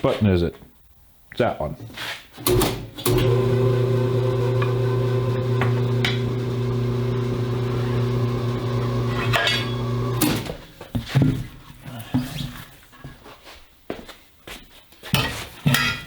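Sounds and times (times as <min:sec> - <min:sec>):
tire changing machine motor: 0:02.4 - 0:10.6.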